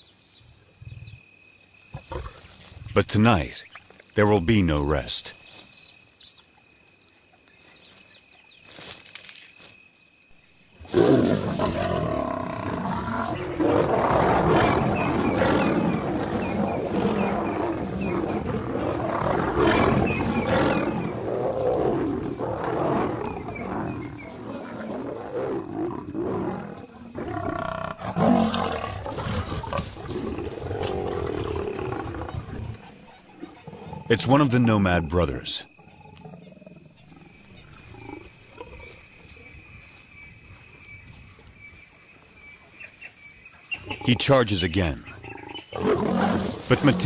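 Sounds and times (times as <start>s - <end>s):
insects chirping: 0.0s - 47.0s
lions snarling and roaring: 1.9s - 3.6s, 10.8s - 39.6s, 43.8s - 47.0s.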